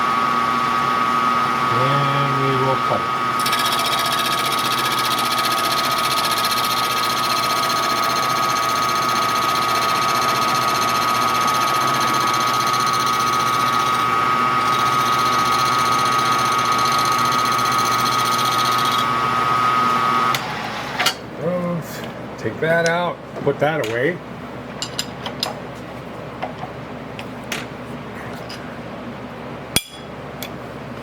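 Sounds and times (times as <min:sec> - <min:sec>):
milling machine whine: 0:00.0 - 0:23.2.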